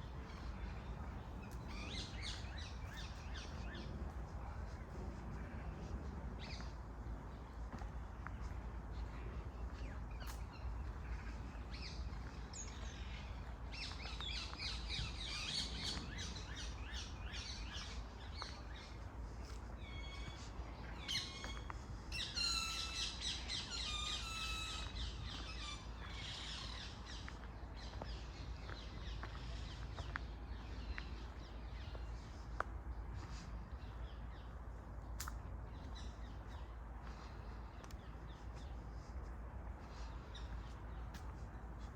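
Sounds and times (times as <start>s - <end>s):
low steady rumble: 0.0s - 41.9s.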